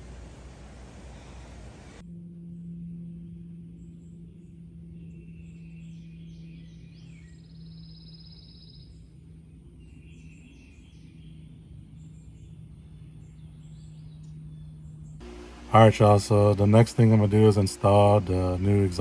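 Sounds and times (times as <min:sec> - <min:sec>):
birds chirping: 0:00.0 - 0:02.0, 0:15.2 - 0:19.0
faint background rumble: 0:00.0 - 0:02.0
steady low hum: 0:00.0 - 0:02.0, 0:14.7 - 0:19.0.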